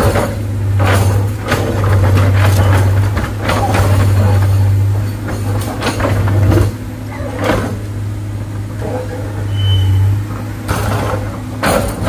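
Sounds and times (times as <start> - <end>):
metal knocks and clanks: 0.0 - 7.9, 10.2 - 12.0
heavy diesel engine droning: 0.0 - 12.0.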